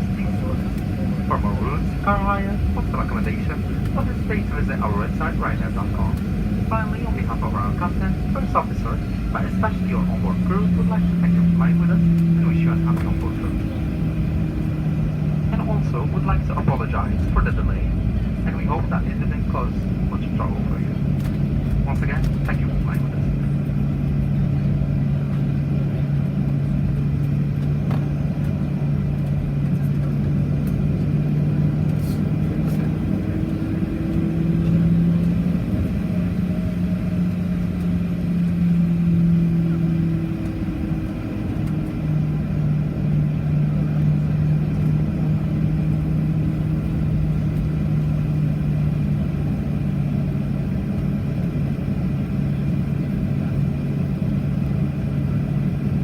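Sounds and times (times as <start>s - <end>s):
airplane cabin drone: 0.0s - 56.0s.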